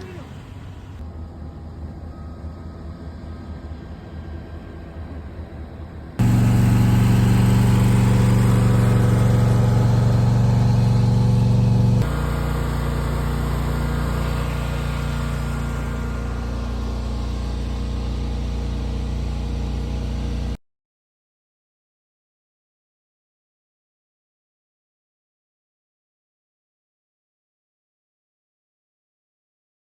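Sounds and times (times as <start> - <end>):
low hum: 0.9 - 20.6
truck engine idling: 6.2 - 20.5.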